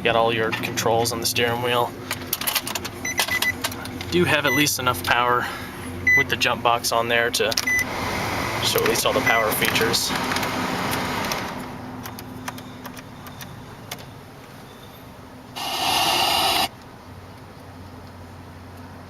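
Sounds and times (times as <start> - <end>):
electric motor whirring: 15.6 - 16.7
loud harsh burst: 15.6 - 16.7.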